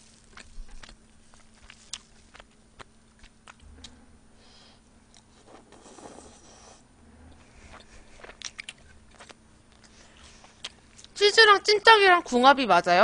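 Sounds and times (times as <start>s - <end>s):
faint wet chewing: 0.0s - 4.0s, 7.3s - 11.2s.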